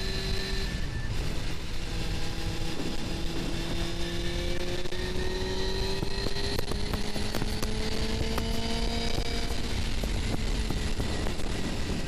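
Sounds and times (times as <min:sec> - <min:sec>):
motorcycle engine running: 0:00.0 - 0:12.0
wind rush on microphone: 0:00.0 - 0:12.0.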